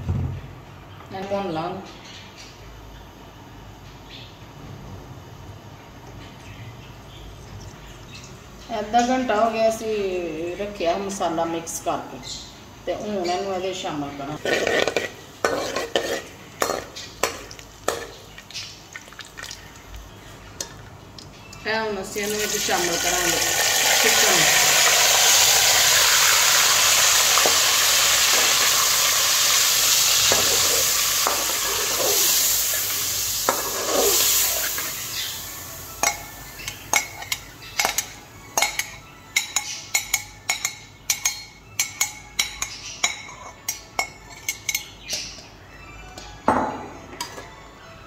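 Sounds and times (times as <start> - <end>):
metal spatula scraping a pot: 14.4 - 17.0, 30.3 - 32.6, 33.5 - 34.9
chicken sizzling in hot fat: 22.2 - 37.6.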